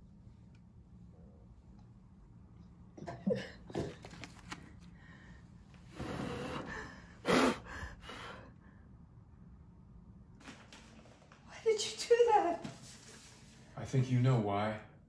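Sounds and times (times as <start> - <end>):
paper clicks and rustles: 3.8 - 4.9
loud puff of breath: 5.9 - 8.5.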